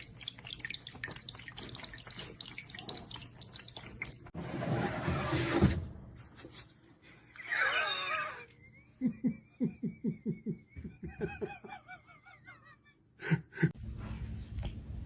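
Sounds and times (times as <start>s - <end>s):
person laughing in pulses: 7.4s - 13.8s.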